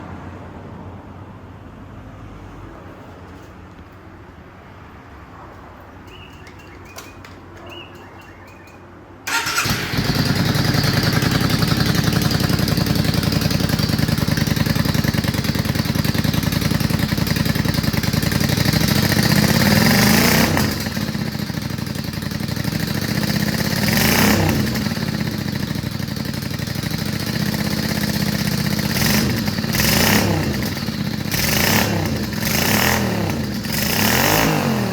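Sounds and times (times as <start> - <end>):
faint clicks: 5.5 - 8.9
motorcycle engine revving: 9.3 - 34.9.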